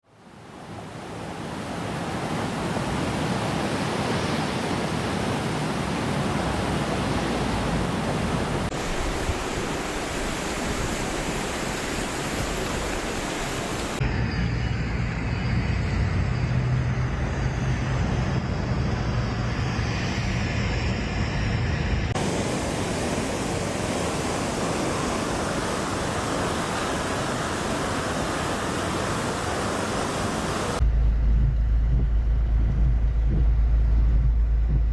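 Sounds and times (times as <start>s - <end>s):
rushing water: 0.0s - 14.0s, 22.2s - 30.8s
low rumble: 30.8s - 34.9s.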